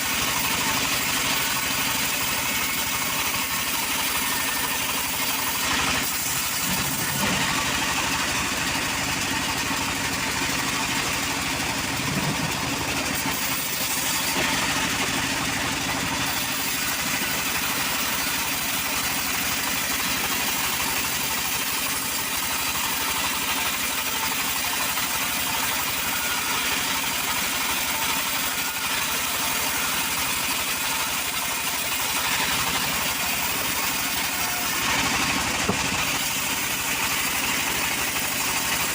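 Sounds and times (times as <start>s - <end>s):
petrol wood saw running: 0.0s - 38.9s.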